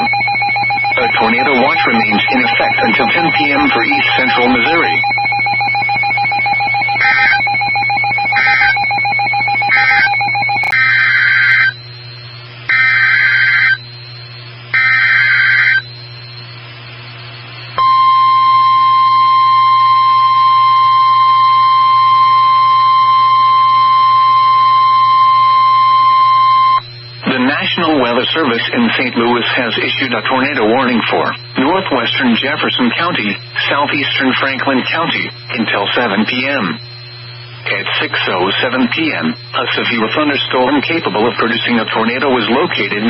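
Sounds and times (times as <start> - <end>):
steady tone with short beeps: 0.0 - 10.8
warbling digital data bursts: 0.0 - 11.9, 12.7 - 13.8, 14.7 - 16.4
long steady alarm tone: 0.0 - 43.0.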